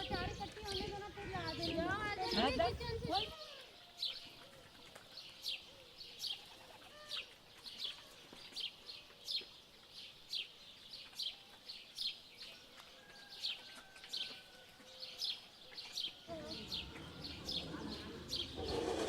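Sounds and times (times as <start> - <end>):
bird chirping: 0.0 - 3.3, 16.0 - 19.0.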